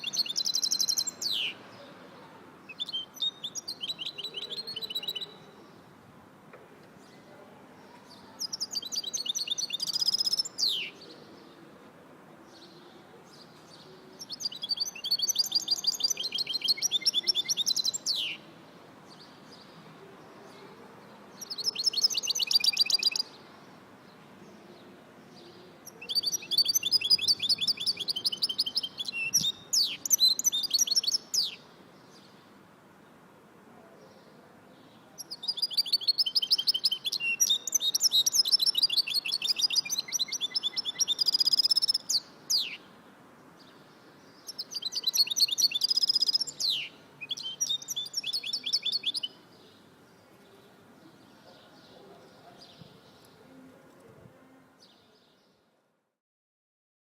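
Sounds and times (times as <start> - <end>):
songbird trilling: 35.2 - 42.8, 44.5 - 49.3.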